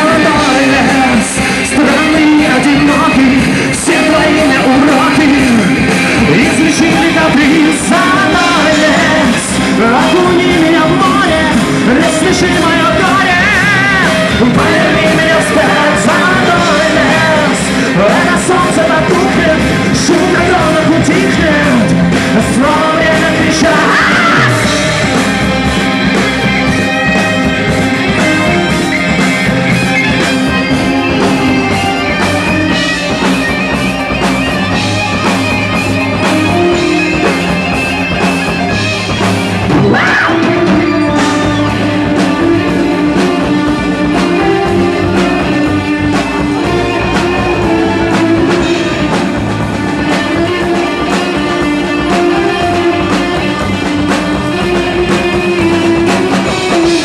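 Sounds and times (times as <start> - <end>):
bass guitar: 0.0 - 57.0
drums: 0.0 - 57.0
electric guitar: 0.0 - 57.0
keyboards: 0.0 - 57.0
violin: 0.0 - 57.0.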